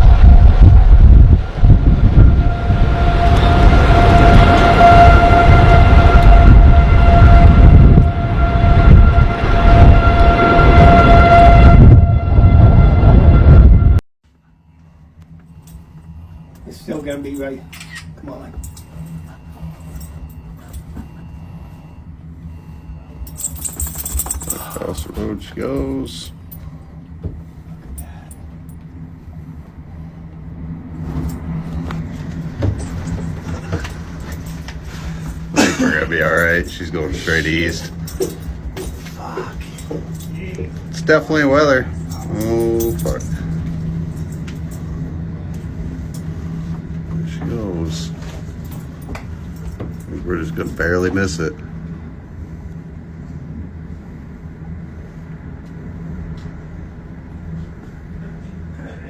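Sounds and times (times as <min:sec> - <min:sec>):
wind buffeting microphone: 0:00.0 - 0:14.0
warning siren steady tone: 0:00.0 - 0:35.5, 0:36.1 - 0:58.4
car engine humming: 0:18.4 - 0:28.8.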